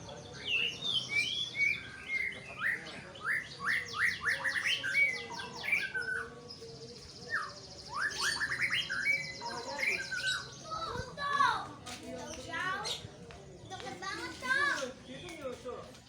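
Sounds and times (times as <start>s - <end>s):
bird singing whistled notes: 0.2s - 10.9s.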